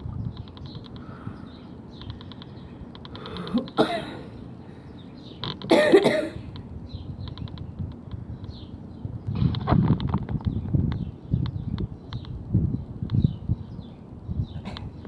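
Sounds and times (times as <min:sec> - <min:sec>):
small birds chirping: 0:00.0 - 0:15.0
person coughing: 0:03.4 - 0:04.4, 0:05.7 - 0:06.4.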